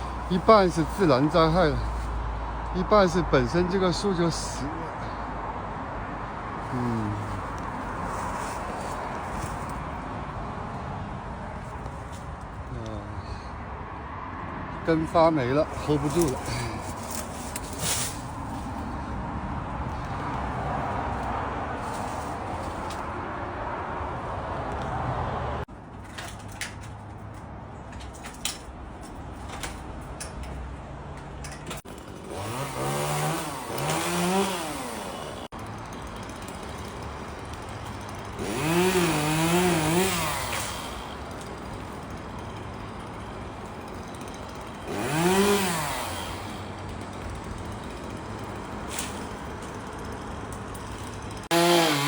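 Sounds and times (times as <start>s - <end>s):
chainsaw idling and revving: 0.0s - 5.2s, 6.6s - 10.0s, 14.9s - 19.2s, 31.7s - 52.0s.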